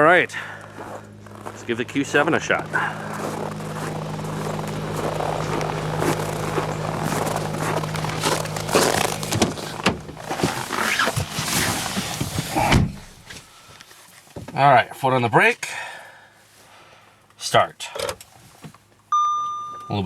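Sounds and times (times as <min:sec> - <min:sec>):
diesel engine idling: 0:00.0 - 0:13.7
heavy thud: 0:09.3 - 0:13.3.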